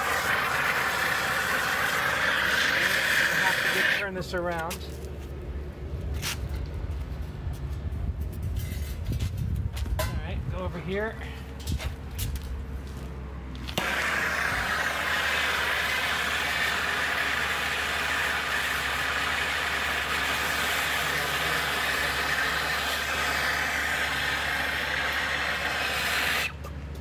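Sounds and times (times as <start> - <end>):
torch flame hissing: 0.0 - 4.3, 13.7 - 26.6.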